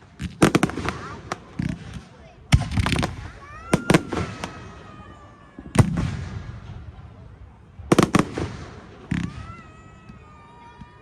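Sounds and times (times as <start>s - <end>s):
firework bangs: 0.0s - 11.0s
firework whistling: 2.6s - 7.3s.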